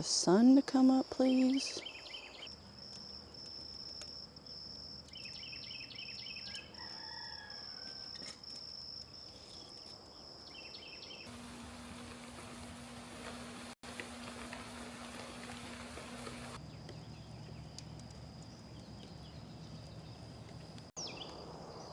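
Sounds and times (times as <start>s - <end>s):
insects trilling: 0.1s - 21.9s
repeated insect chirps: 1.8s - 11.3s
even hiss: 11.3s - 16.6s.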